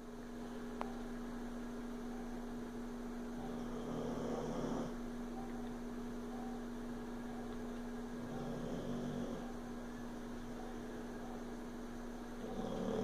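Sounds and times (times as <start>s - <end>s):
steady electrical hum: 0.0s - 13.0s
dog snoring: 3.4s - 5.0s, 8.2s - 9.6s, 12.4s - 13.0s.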